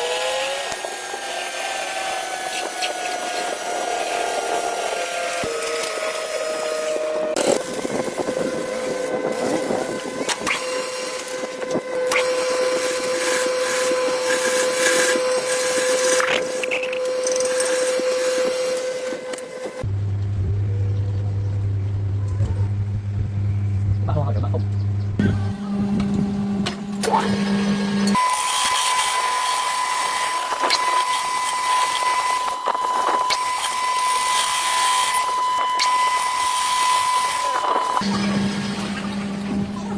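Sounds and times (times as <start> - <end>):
machine motor whining: 0.0 - 39.9.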